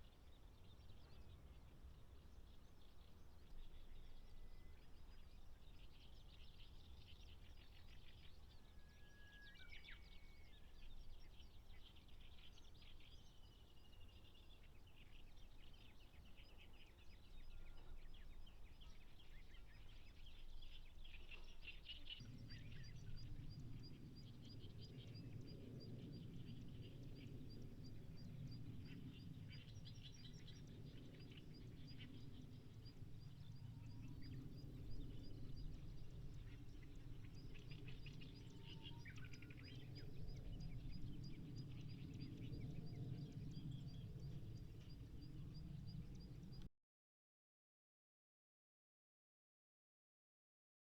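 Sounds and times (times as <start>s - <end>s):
small birds chirping: 10.8s - 46.6s.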